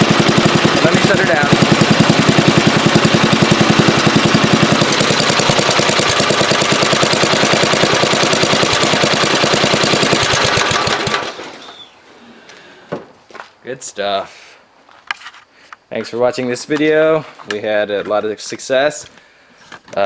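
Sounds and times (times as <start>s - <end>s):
small gasoline engine idling: 0.0s - 11.8s.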